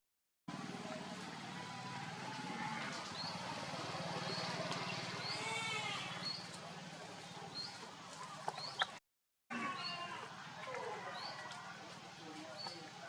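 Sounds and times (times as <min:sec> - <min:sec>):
wavering bleat-like animal call: 0:05.2 - 0:06.3, 0:09.5 - 0:10.3.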